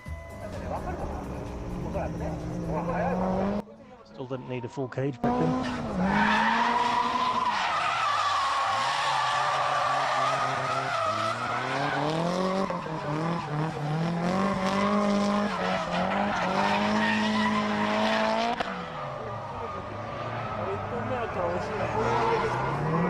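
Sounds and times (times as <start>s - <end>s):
car engine revving: 0.5s - 3.6s, 5.2s - 23.0s.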